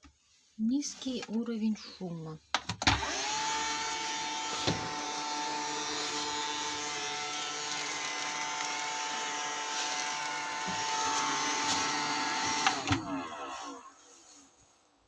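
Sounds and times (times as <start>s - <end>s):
robot vacuum whine: 3.0s - 14.6s.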